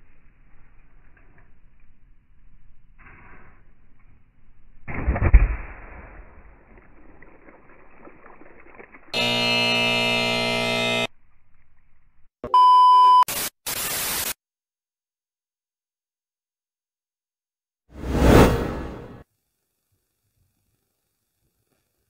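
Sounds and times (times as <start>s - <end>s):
bursts of static: 9.2s - 11.1s, 13.2s - 14.4s
harsh electronic buzzer: 9.2s - 11.1s
short steady beep: 12.4s - 13.3s.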